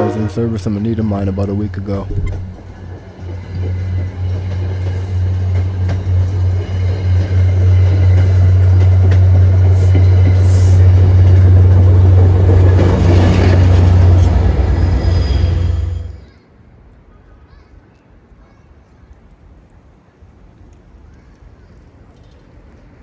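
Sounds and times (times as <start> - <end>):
train engine drone: 0.0 - 16.3
train wheel and rail noise: 0.0 - 16.3.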